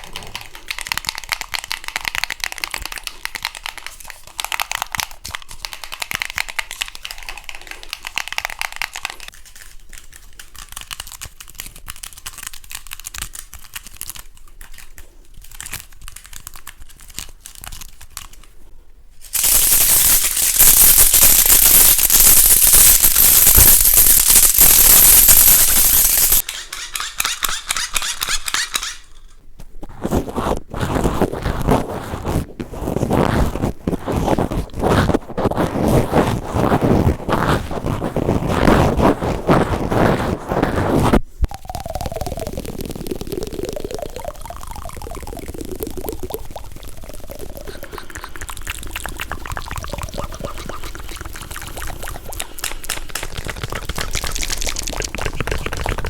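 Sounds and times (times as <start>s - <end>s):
dense crackling or scratching: 19.2s - 26.5s, 28.0s - 56.0s.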